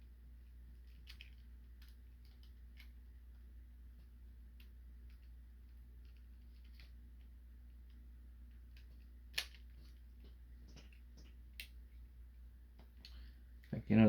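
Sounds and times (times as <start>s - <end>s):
low steady hum: 0.0s - 14.0s
plastic parts clicking: 0.8s - 3.0s, 8.6s - 10.0s.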